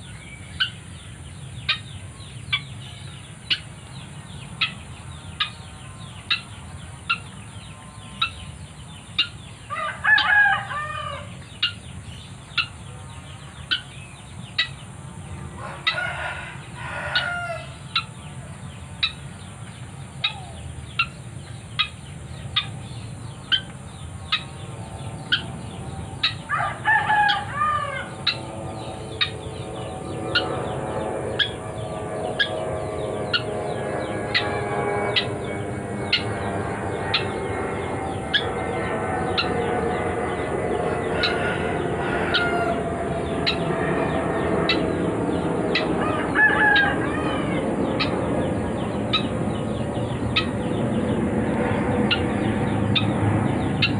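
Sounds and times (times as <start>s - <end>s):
rooster crowing: 9.7s - 11.4s, 15.5s - 18.0s, 26.2s - 29.7s, 40.2s - 43.7s, 44.6s - 48.1s.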